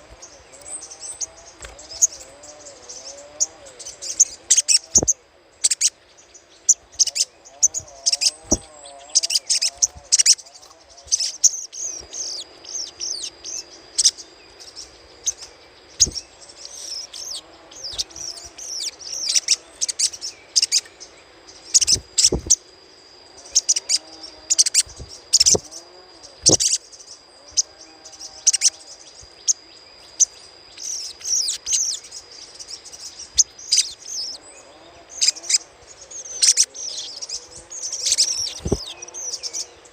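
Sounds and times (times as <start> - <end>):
bird chattering: 21.7 - 22.6, 23.5 - 25.8, 26.4 - 26.8, 37.8 - 39.6.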